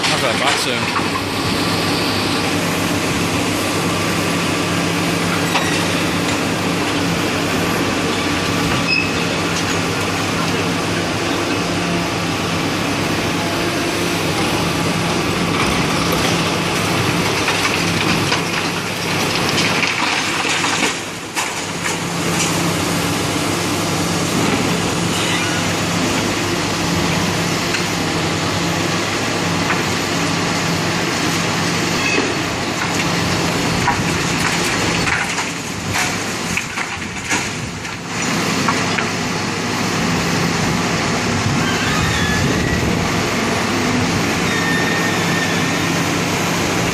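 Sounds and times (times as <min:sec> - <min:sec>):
machinery engine humming: 0:00.0 - 0:46.9
building material crunching and cracking: 0:15.4 - 0:22.6, 0:32.5 - 0:39.2.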